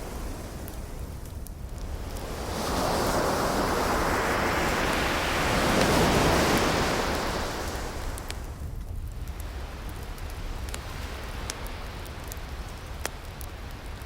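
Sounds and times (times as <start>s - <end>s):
wood fire crackling: 0.0s - 14.0s
ocean wave breaking: 2.2s - 8.5s.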